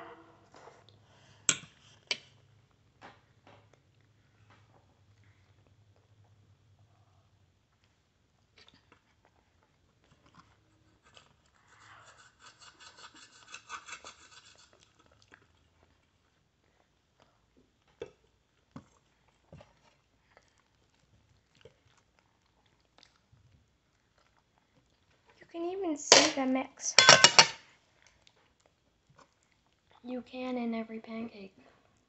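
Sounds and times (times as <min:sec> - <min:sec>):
faint chewing: 0:03.6 - 0:25.5, 0:27.9 - 0:30.1.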